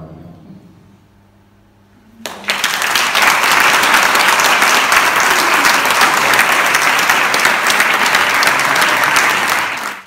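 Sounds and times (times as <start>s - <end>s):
audience applauding: 2.2s - 10.0s.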